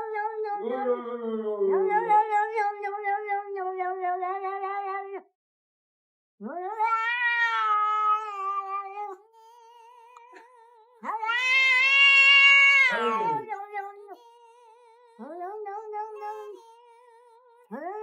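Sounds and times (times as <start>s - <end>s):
cat meowing: 6.4s - 18.0s.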